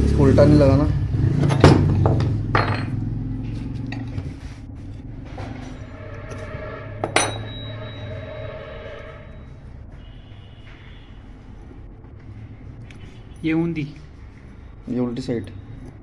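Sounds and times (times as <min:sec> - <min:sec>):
sharp ringing metal knocks: 0:05.4 - 0:08.0.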